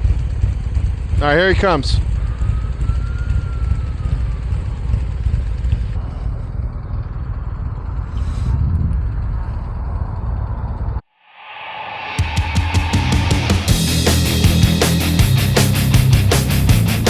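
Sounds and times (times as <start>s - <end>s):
motorcycle engine rumble: 0.0s - 11.0s
wind on microphone: 7.9s - 11.0s
music: 12.1s - 17.0s.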